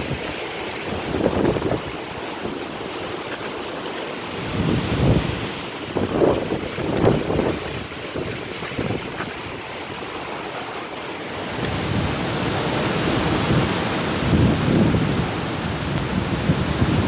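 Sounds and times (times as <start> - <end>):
strong wind buffeting microphone: 0.0 - 3.2, 4.3 - 17.0.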